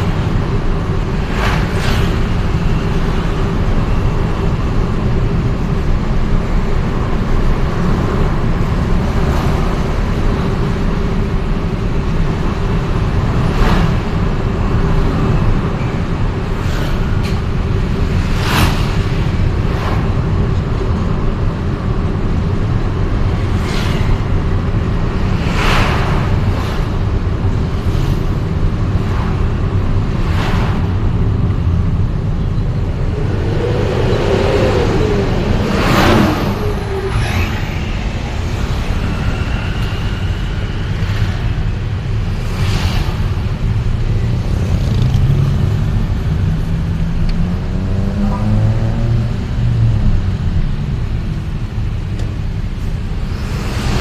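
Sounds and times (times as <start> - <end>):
road traffic rumble: 0.0 - 54.0
vehicles whooshing past: 0.0 - 54.0
engine revving: 32.6 - 43.5.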